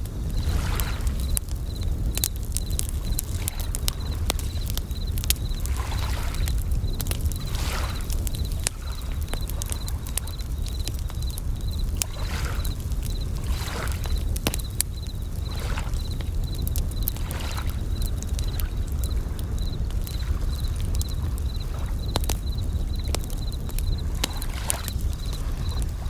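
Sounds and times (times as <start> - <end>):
campfire crackling and popping: 0.0 - 26.0
crickets chirping: 0.0 - 26.0
waves washing in: 0.2 - 1.4, 2.0 - 14.2.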